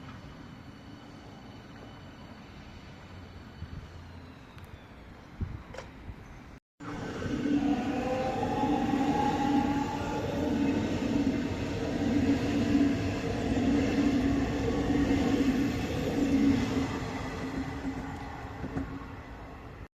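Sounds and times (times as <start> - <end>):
train rolling rumble: 6.8 - 19.9.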